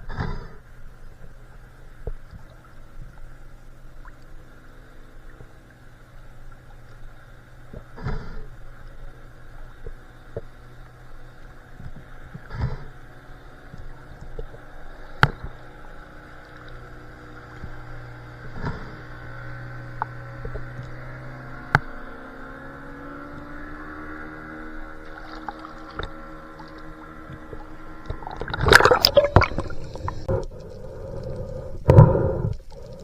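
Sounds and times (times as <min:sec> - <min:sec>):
low underwater hum: 0:00.0 - 0:33.0.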